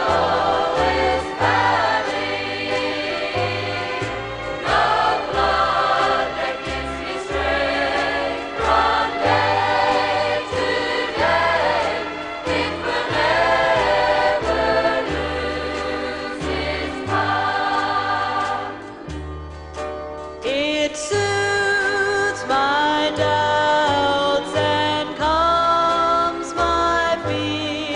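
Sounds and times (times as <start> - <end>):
choir singing gospel song: 0.0 - 19.2.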